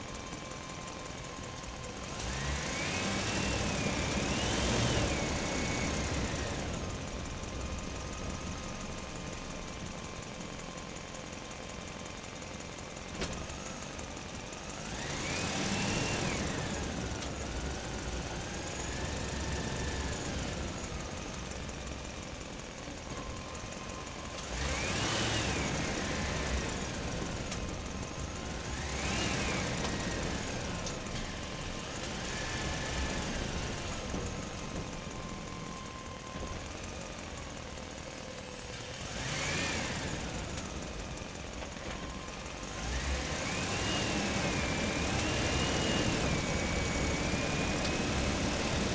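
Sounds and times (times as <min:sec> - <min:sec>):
small motor whining: 0:14.8 - 0:21.6, 0:23.1 - 0:36.8, 0:38.8 - 0:48.9.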